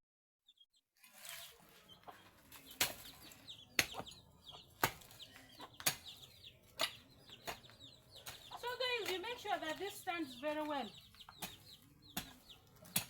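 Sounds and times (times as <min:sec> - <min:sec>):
chickens clucking: 0:01.1 - 0:13.0
tool striking earth: 0:02.4 - 0:09.8, 0:11.1 - 0:13.0.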